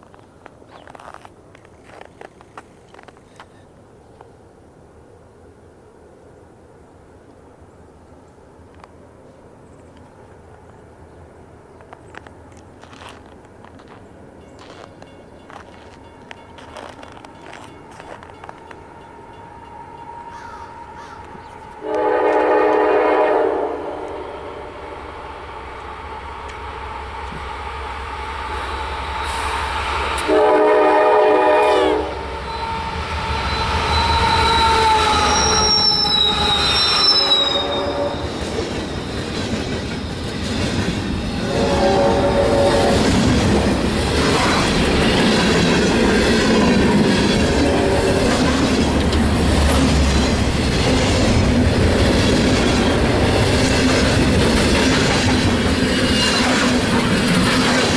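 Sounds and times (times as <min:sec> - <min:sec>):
train running past: 0:03.8 - 0:57.9
locomotive air horn blasts: 0:21.8 - 0:24.8, 0:29.2 - 0:38.4, 0:41.4 - 0:43.1
high wheel squeal: 0:32.4 - 0:40.5, 0:55.6 - 0:56.8.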